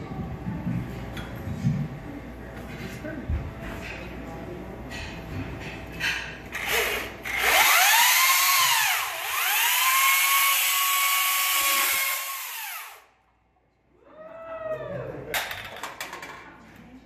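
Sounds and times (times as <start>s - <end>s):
chainsaw revving: 6.6s - 13.0s.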